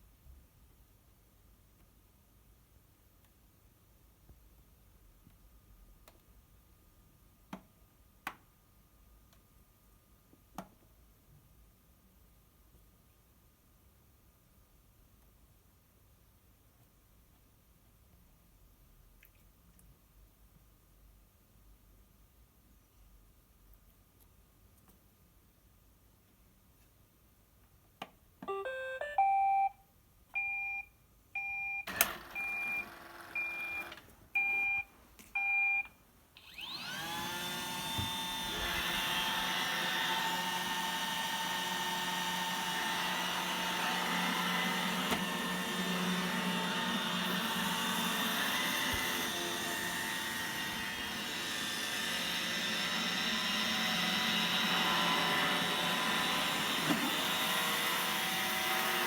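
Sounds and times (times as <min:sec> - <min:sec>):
short beeps: 0:28.5 - 0:29.8
robot vacuum motors whining: 0:31.9 - 0:34.0, 0:36.4 - 0:59.0.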